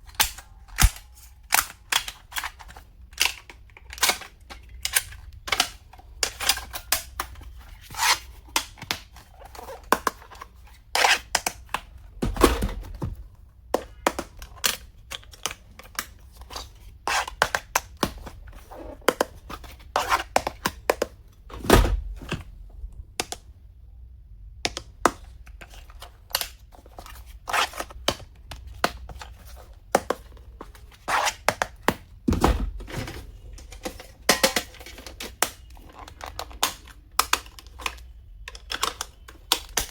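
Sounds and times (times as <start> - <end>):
heavy thumps: 12.2 - 13.3
small plastic items clicking: 34.8 - 39.9.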